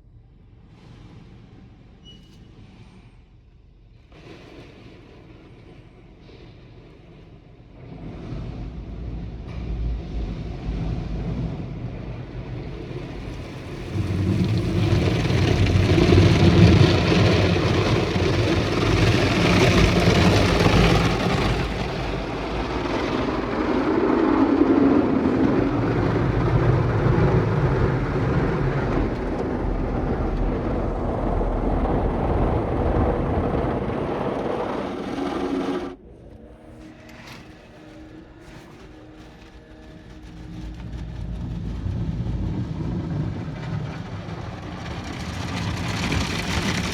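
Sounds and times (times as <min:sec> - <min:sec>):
low machine rumble: 0:00.0 - 0:46.9
water jets spraying car: 0:12.5 - 0:29.8.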